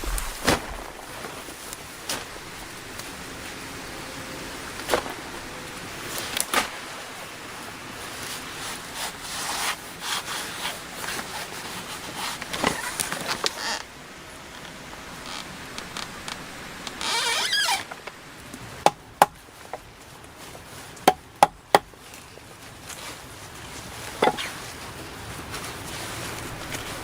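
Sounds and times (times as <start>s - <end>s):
scraping and rustling: 0.0s - 3.6s, 21.9s - 27.0s
wood knocks and clatters: 24.2s - 24.5s.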